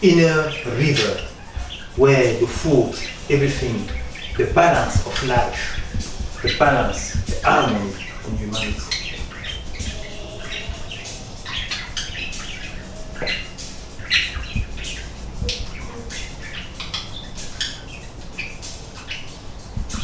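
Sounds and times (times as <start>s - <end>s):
birds chirping: 0.0s - 20.0s
low steady hum: 0.0s - 20.0s.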